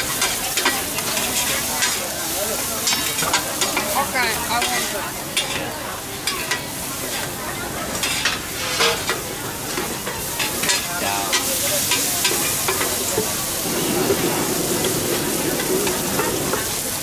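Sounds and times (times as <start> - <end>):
noodles sizzling on a pan: 0.0 - 17.0
metal spatulas scraping a pan: 8.0 - 17.0.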